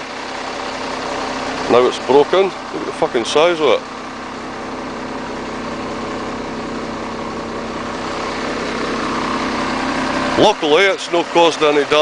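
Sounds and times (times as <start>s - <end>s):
lorry diesel engine running: 0.0s - 12.0s.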